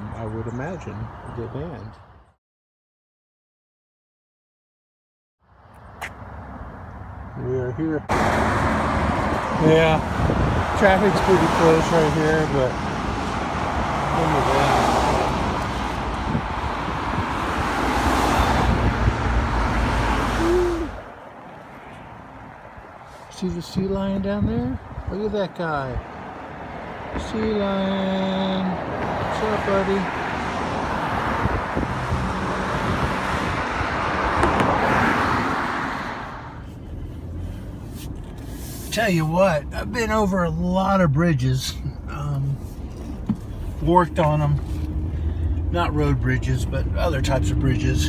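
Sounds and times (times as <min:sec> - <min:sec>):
road traffic rumble: 0:00.0 - 0:02.4, 0:05.4 - 0:48.0
vehicle passing: 0:06.2 - 0:23.1, 0:28.7 - 0:38.3.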